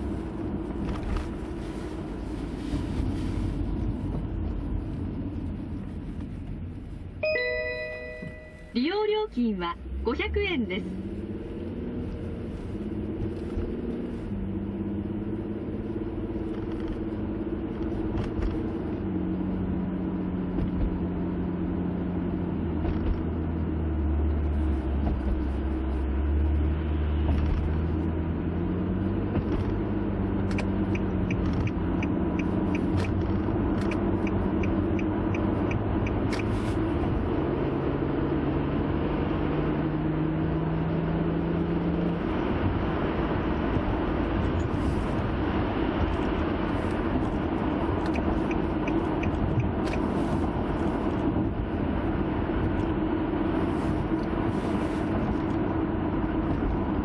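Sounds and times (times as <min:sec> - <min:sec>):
car engine accelerating: 0:09.5 - 0:57.0
evenly spaced clicks: 0:33.8 - 0:34.8.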